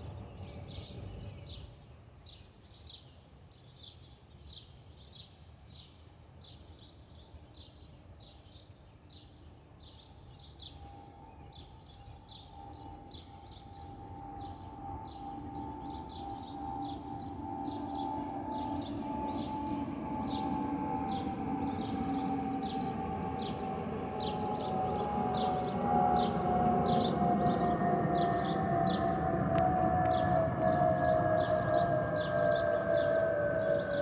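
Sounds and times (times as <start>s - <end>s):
low aircraft rumble: 0.0s - 2.0s, 9.6s - 34.0s
aircraft two-note whistling: 12.6s - 34.0s.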